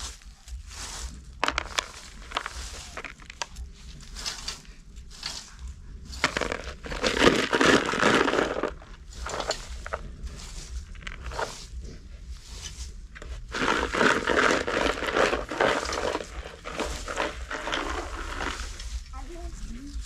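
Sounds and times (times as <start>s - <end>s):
crinkling and rustling: 0.0s - 20.0s.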